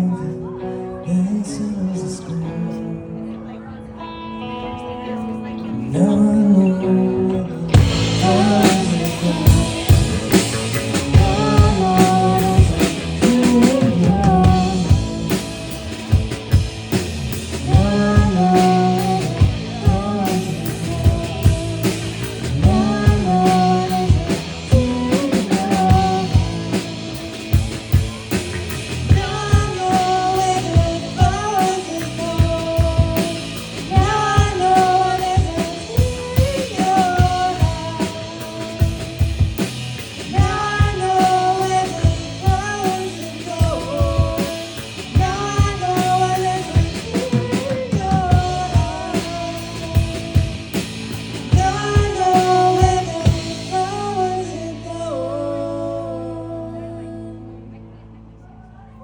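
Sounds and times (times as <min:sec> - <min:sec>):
dream-pop band music: 0:00.0 - 0:58.4
drum kit steady beat: 0:07.7 - 0:54.5.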